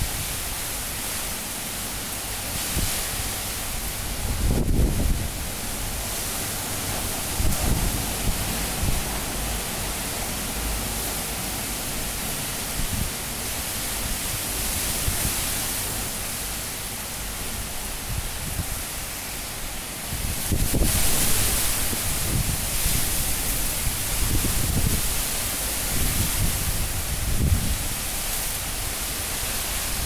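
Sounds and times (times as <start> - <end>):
wind gusts buffeting microphone: 2.4 - 16.1, 17.4 - 19.2, 20.0 - 30.0
high wind rushing: 3.8 - 13.2.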